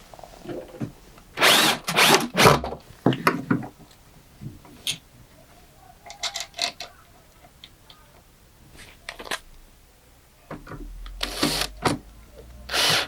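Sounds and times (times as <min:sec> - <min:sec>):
power drill driving screws: 0:01.4 - 0:02.6, 0:11.2 - 0:12.0, 0:12.7 - 0:13.0.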